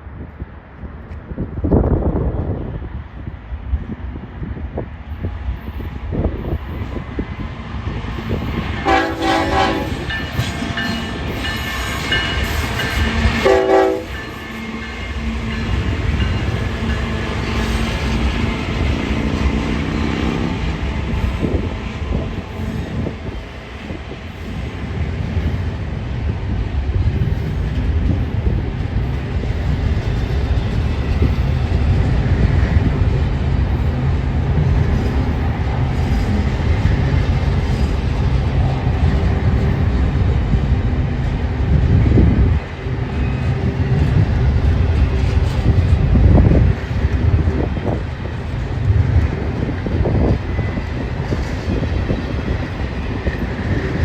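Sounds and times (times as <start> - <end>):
freight train rumbling past: 0.0 - 54.0
train wheel clatter: 8.2 - 26.0.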